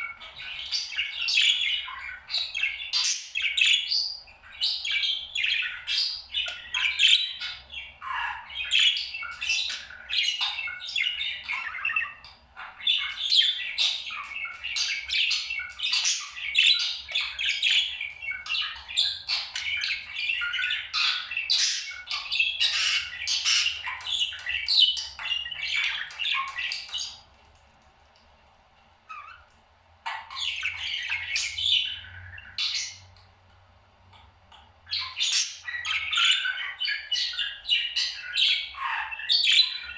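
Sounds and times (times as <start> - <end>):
parrot chattering and squawking: 5.6 - 27.2, 29.1 - 33.0, 34.9 - 39.9.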